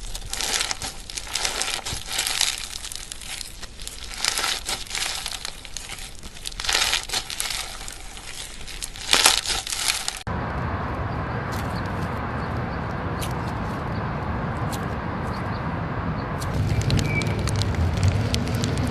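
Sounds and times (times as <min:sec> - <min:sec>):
slime squishing by hand: 0:00.0 - 0:10.3
steady rumbling background noise: 0:00.0 - 0:18.9.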